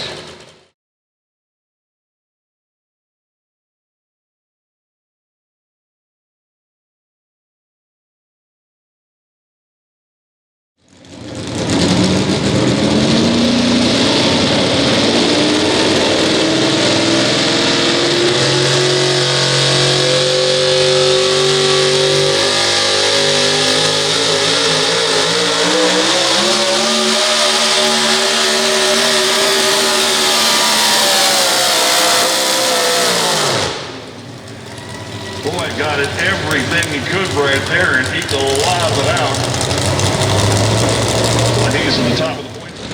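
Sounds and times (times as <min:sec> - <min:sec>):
tractor diesel engine at full power: 0:00.0 - 0:00.7, 0:11.0 - 0:42.9.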